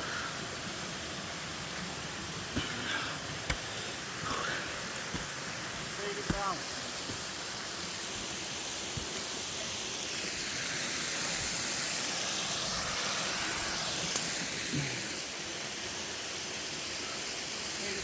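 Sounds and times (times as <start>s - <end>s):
waterfall rushing water: 0.0s - 18.0s.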